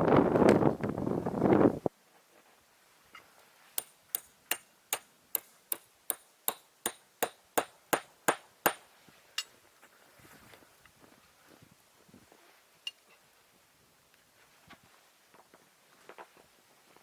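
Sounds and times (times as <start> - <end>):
wind noise: 0.0 - 1.9
hammer strikes: 3.8 - 8.8.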